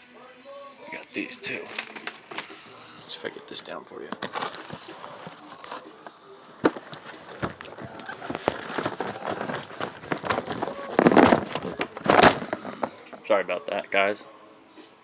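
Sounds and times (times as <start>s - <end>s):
boxes clattering: 1.5s - 2.6s, 4.1s - 13.2s
cardboard boxes knocking and bumping: 6.5s - 13.1s.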